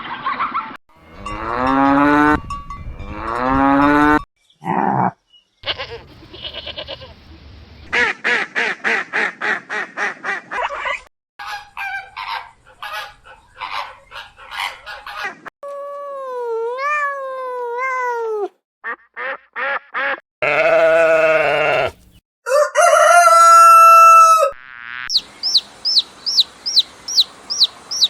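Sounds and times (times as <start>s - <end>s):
cow mooing: 1.0s - 2.4s, 3.1s - 5.1s
geese honking: 11.4s - 15.4s
fast pulsing animal call: 25.1s - 28.0s.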